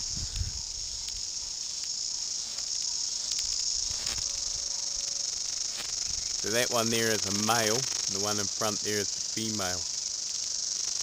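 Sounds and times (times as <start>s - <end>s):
cicadas buzzing: 0.0s - 11.0s
faint clicks: 1.8s - 2.0s.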